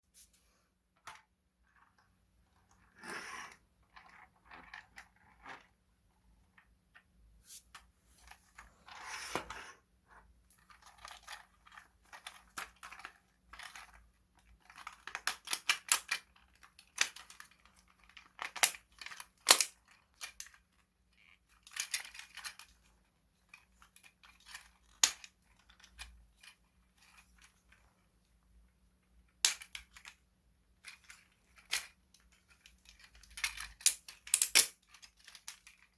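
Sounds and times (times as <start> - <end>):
plastic toy clicking and rattling: 10.5 - 28.0, 29.2 - 35.9.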